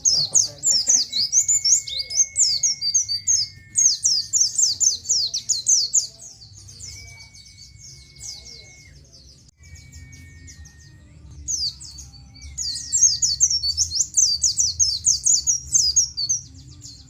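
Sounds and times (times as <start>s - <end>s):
bird chirping rapidly: 0.0s - 16.6s.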